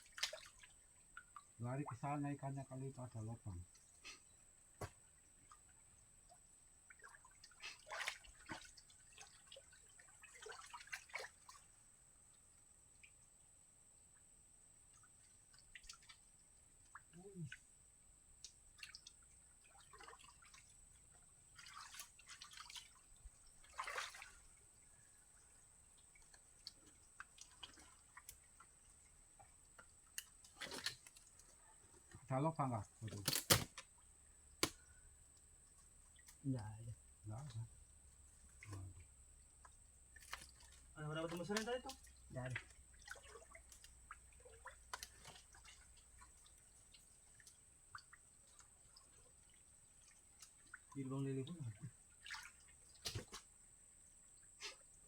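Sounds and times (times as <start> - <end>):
muddy water splashing: 0.0 - 2.2, 6.9 - 11.8, 18.4 - 31.7, 38.4 - 53.6
water dripping: 0.0 - 2.2, 14.8 - 54.6.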